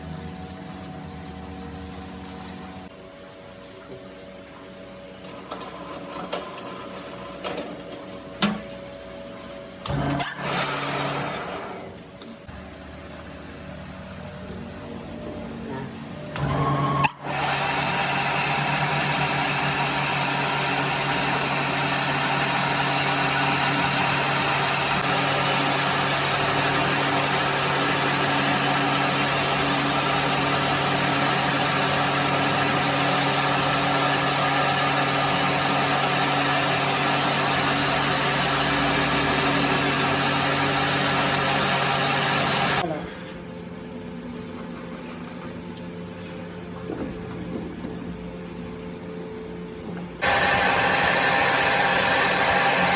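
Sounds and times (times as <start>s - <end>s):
motor-driven machine humming: 16.4s - 42.9s, 49.9s - 52.9s.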